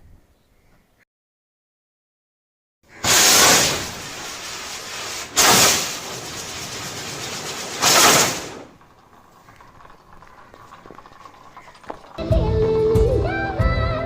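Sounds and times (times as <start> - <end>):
firework rockets rushing hiss: 2.9 - 8.8.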